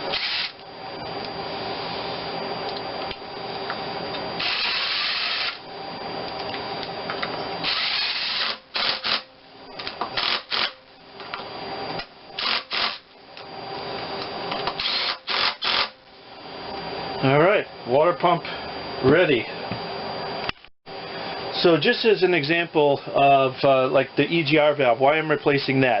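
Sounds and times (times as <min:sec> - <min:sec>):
power drill driving bolts: 0:00.1 - 0:00.6, 0:07.6 - 0:09.3, 0:10.2 - 0:10.8, 0:12.4 - 0:13.0, 0:14.7 - 0:15.9.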